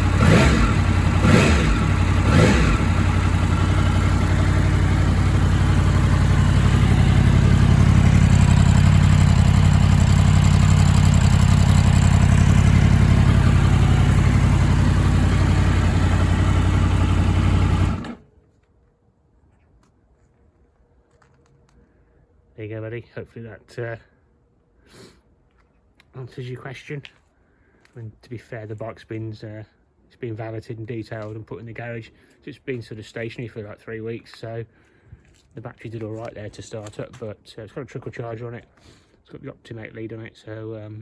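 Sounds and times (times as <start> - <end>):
motorcycle engine revving and idling: 0.0 - 18.2.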